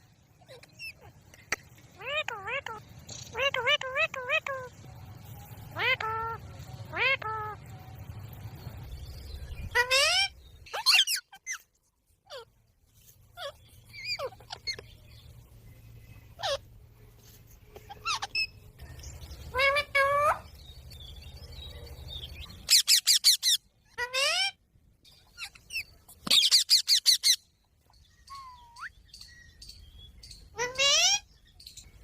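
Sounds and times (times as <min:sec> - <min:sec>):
parrot squawking: 0:02.0 - 0:04.7, 0:05.8 - 0:07.6, 0:09.7 - 0:11.6, 0:13.4 - 0:14.8, 0:16.4 - 0:16.6, 0:17.9 - 0:18.6, 0:19.5 - 0:20.5, 0:22.4 - 0:24.6, 0:25.2 - 0:27.4, 0:30.5 - 0:31.3
parrot sharp repeated calls: 0:05.8 - 0:07.6.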